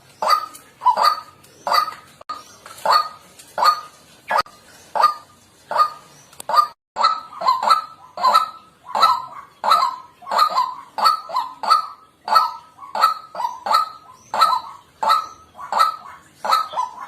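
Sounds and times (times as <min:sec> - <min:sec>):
waterhen kwak calls: 0:00.0 - 0:17.0.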